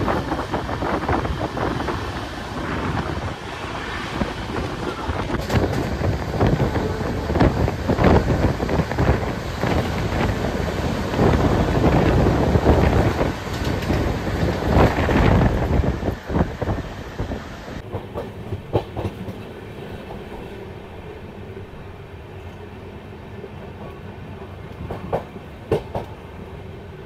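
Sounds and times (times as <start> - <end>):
wind rushing over microphone: 0.0 - 18.0
train rumble: 0.0 - 27.0.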